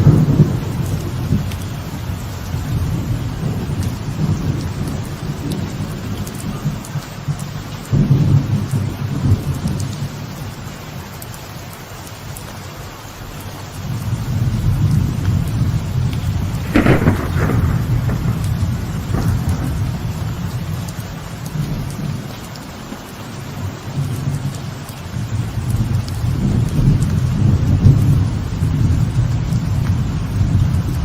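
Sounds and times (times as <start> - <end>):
rolling thunder rumble: 0.0 - 10.7, 13.8 - 22.4, 23.6 - 31.0
light rain on a veranda: 0.0 - 31.0
sharp thunder crack: 16.2 - 20.9.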